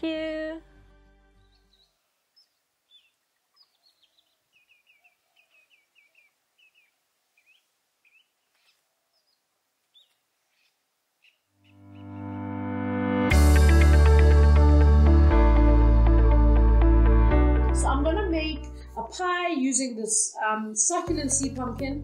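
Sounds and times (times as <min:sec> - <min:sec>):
faint bird chirps: 0:01.4 - 0:12.3.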